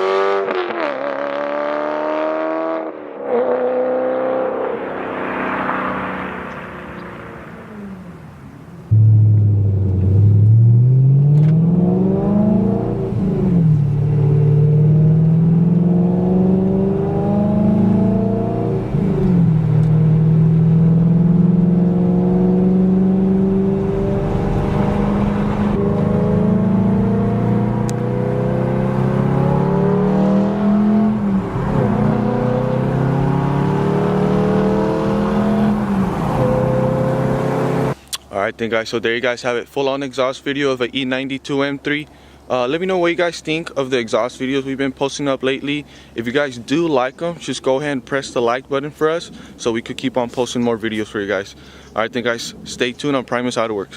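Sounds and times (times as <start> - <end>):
car engine accelerating with upshifts: 0.0 - 38.0.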